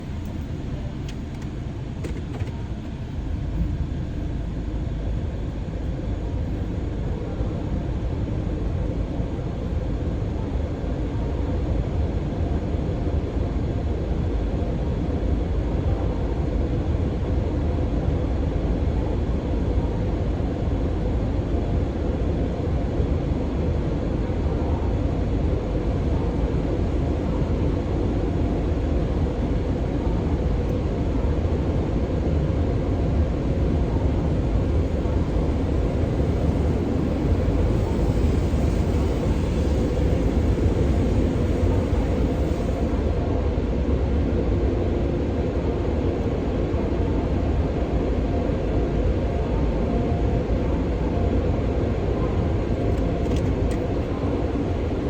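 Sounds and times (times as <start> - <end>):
low vehicle rumble: 25.6 - 43.6.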